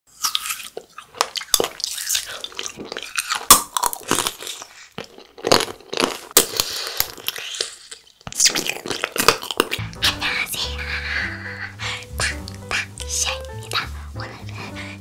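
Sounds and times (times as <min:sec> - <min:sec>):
wet chewing: 0:00.1 - 0:15.0
candy shell cracking: 0:00.2 - 0:10.0.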